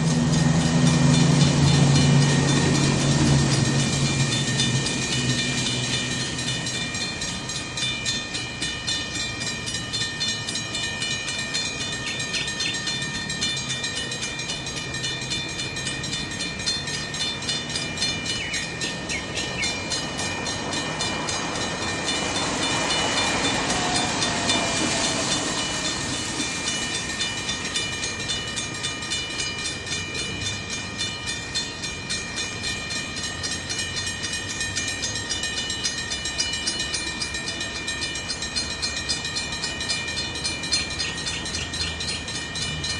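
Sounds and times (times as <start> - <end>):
locomotive engine hum: 0.0 - 42.9
train wagons clattering: 0.0 - 42.9
high squeal from wheels: 14.8 - 29.5.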